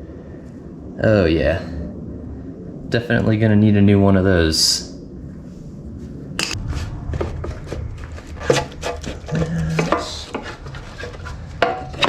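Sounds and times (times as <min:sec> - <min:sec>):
knocks clicks and scraping: 0:06.4 - 0:12.0.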